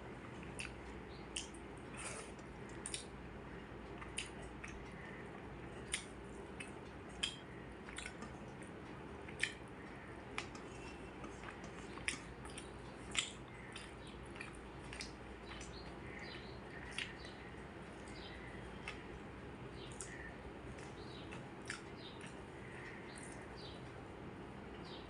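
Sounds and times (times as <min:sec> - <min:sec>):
steady low hum: 0:00.0 - 0:25.0
person chewing food: 0:00.2 - 0:03.2, 0:03.8 - 0:19.2, 0:19.8 - 0:23.5
wet mouth smacks and clicks: 0:02.8 - 0:03.1, 0:05.9 - 0:08.3, 0:09.3 - 0:09.6, 0:21.6 - 0:22.4.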